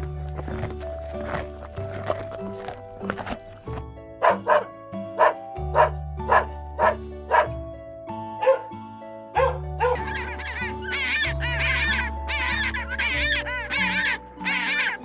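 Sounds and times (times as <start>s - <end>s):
background music: 0.0s - 15.0s
dog barking: 4.2s - 7.6s, 8.4s - 8.7s, 9.4s - 10.1s.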